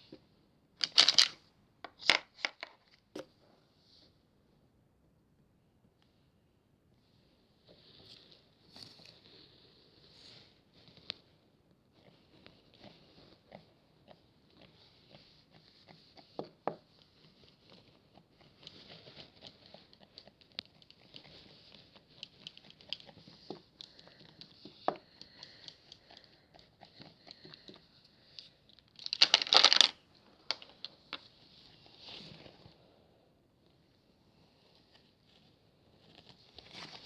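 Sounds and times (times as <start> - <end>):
paper or plastic crinkling: 0.8 - 1.3, 29.0 - 31.2
soft rustling: 7.0 - 37.0.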